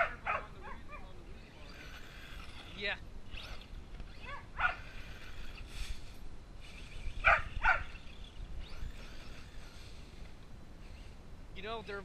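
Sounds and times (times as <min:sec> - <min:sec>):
husky barking: 0:00.0 - 0:01.1, 0:04.2 - 0:04.9, 0:07.2 - 0:08.0.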